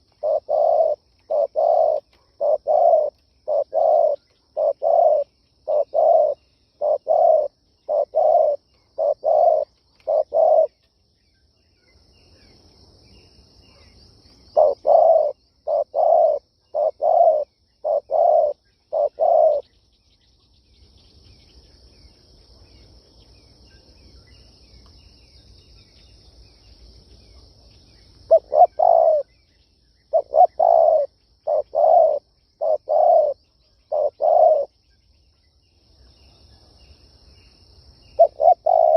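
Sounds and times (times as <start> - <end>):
dove cooing: 0.0 - 10.8, 14.6 - 19.6, 28.3 - 29.3, 30.1 - 34.7, 38.2 - 38.9.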